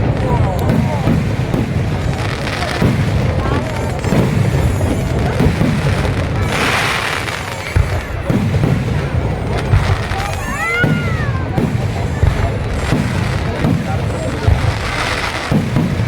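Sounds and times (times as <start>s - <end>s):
firecrackers booming: 0.0s - 16.0s
firework hissing burst: 0.0s - 16.0s
firework whistle: 0.0s - 16.0s.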